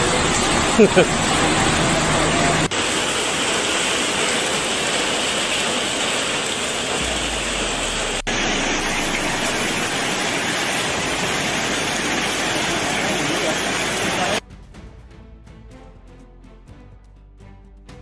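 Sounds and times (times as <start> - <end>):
water rushing: 0.0 - 14.4.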